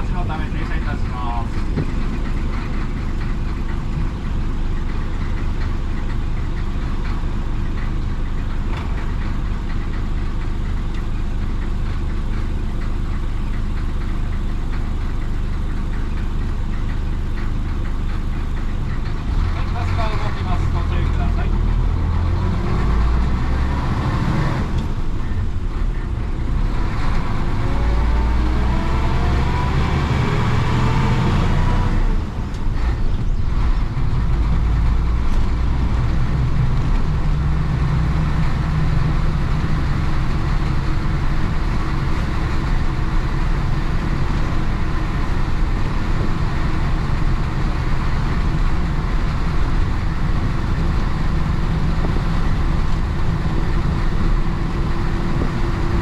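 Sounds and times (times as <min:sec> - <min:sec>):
bus diesel engine pulling: 0:00.0 - 0:56.0.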